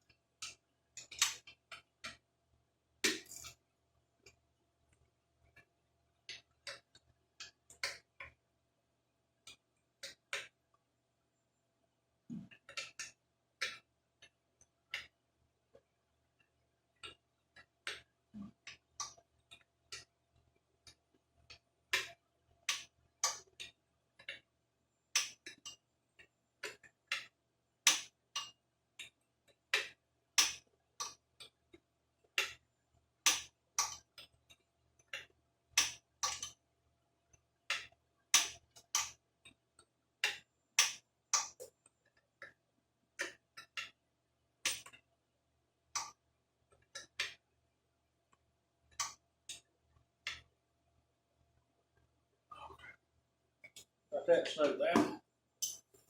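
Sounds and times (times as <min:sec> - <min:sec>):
tools clicking and tapping: 0:00.0 - 0:02.2, 0:03.0 - 0:03.6, 0:06.3 - 0:08.4, 0:09.5 - 0:10.6, 0:12.3 - 0:15.2, 0:20.9 - 0:24.5, 0:25.1 - 0:31.6, 0:32.3 - 0:32.6, 0:33.2 - 0:36.6, 0:37.7 - 0:42.6, 0:43.2 - 0:44.0, 0:44.6 - 0:45.1, 0:45.9 - 0:46.2, 0:46.8 - 0:47.4, 0:48.3 - 0:49.7, 0:50.3 - 0:50.5, 0:55.0 - 0:56.0.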